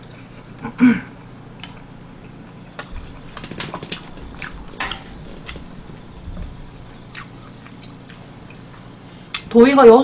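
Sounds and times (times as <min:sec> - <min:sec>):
person chewing with wet smacks: 0:01.6 - 0:09.5.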